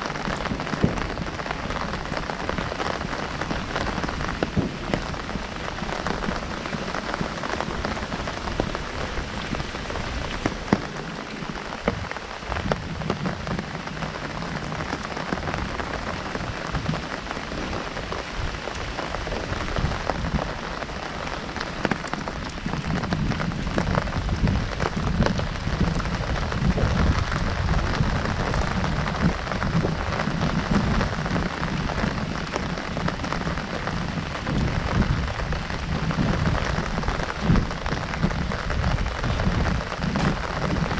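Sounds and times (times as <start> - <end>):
heavy rain on umbrella: 0.0 - 40.9.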